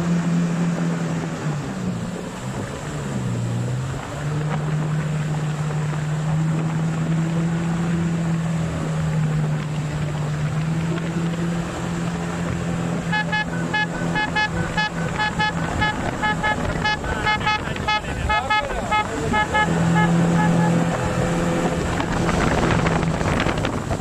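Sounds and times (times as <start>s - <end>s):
engine humming: 0.0s - 24.0s
short high-pitched horn beeps: 13.0s - 21.1s.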